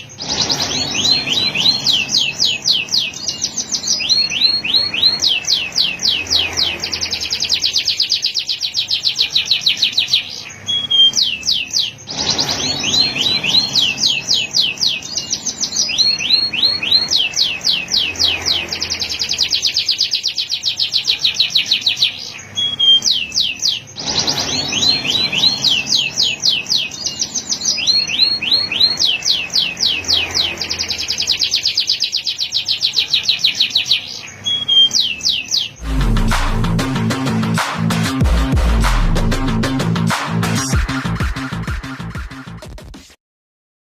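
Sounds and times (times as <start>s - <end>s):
canary singing rapid rolls: 0.0s - 42.1s.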